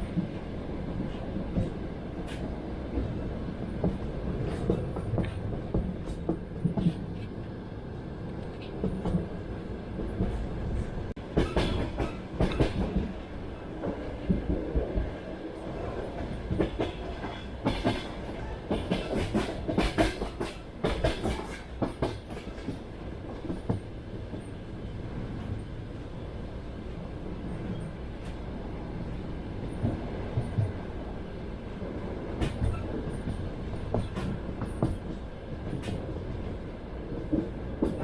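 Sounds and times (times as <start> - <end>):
train carriage rolling rumble: 0.0 - 38.0
train wheels clacking over rail joints: 11.3 - 15.1, 16.2 - 24.5.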